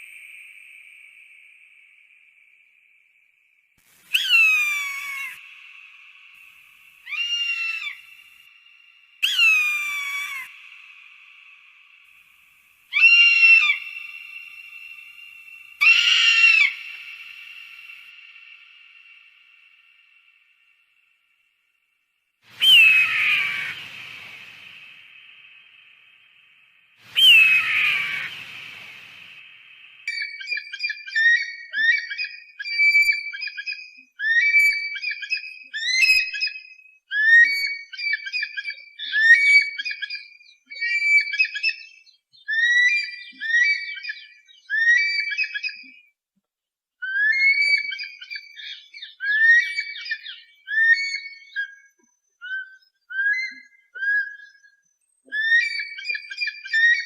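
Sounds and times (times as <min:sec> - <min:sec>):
eagle calls: 0:04.2 - 0:05.4, 0:15.8 - 0:17.5, 0:22.6 - 0:24.6, 0:27.1 - 0:29.1.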